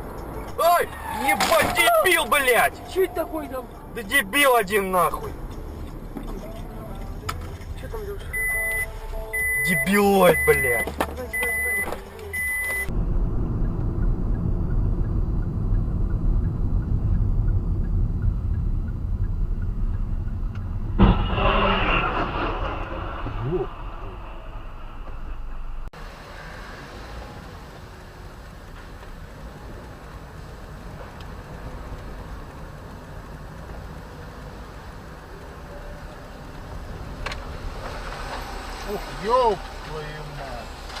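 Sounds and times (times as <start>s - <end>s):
car driving rumble: 0.0s - 41.0s
short high beeps: 8.3s - 12.9s
sudden loud noise: 12.9s - 18.2s, 20.4s - 25.9s.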